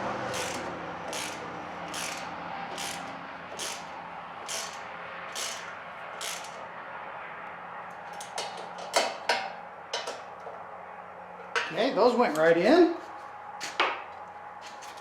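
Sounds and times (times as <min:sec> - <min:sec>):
ratchet wrench ratcheting: 0:00.3 - 0:06.7.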